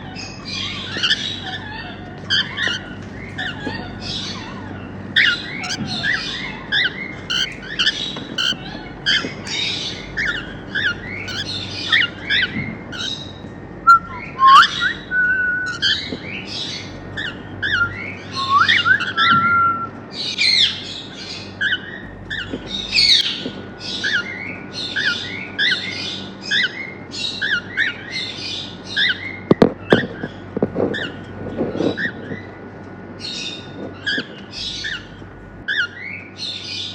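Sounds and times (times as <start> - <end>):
cockatiels chirping: 0.0 - 19.5, 20.2 - 32.5, 33.2 - 36.9
whistled bird notes: 2.3 - 21.0.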